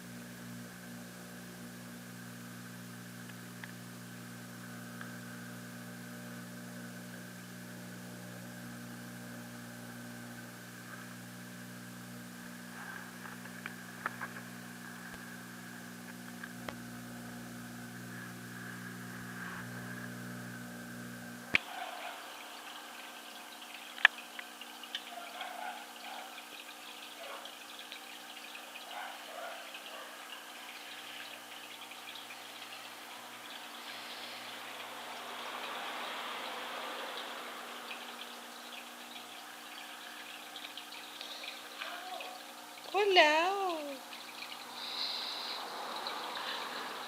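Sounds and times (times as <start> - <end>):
aquarium pump motor humming: 0.0 - 47.0.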